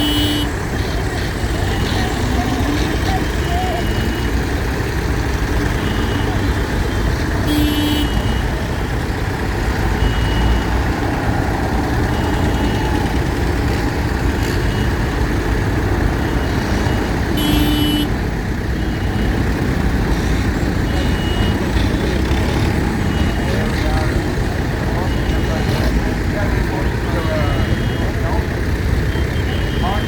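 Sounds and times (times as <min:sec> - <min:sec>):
horn toot: 0:00.0 - 0:04.3, 0:07.4 - 0:08.6, 0:16.7 - 0:18.2
heavy diesel engines running: 0:00.0 - 0:30.0.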